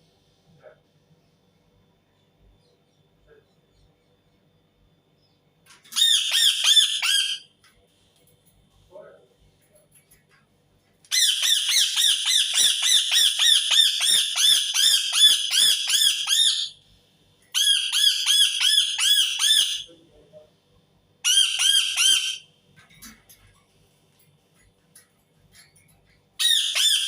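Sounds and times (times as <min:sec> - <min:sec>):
parakeet screeching: 0:05.9 - 0:07.4, 0:11.1 - 0:16.8, 0:17.5 - 0:19.9, 0:21.2 - 0:22.5, 0:26.4 - 0:27.0.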